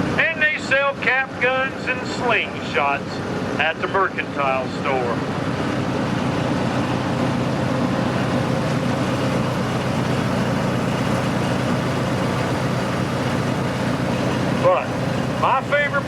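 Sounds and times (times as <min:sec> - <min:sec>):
ride train rumbling on track: 0:00.0 - 0:16.0.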